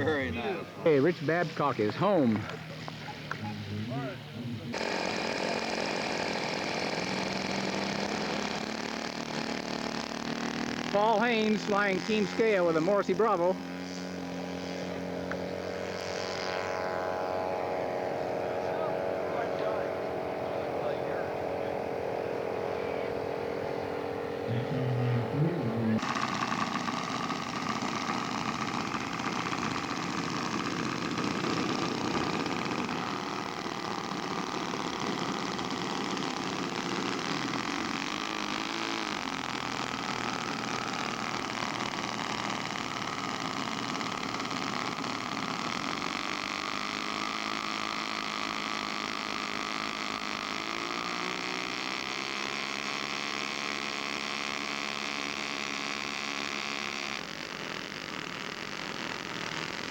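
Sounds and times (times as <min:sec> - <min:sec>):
model airplane engine in flight: 0:00.0 - 0:59.9.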